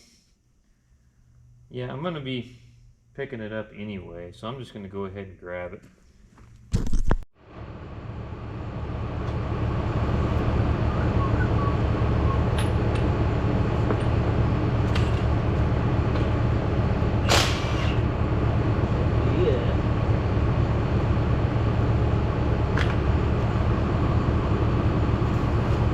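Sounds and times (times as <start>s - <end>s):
crane motor humming: 7.4s - 25.9s.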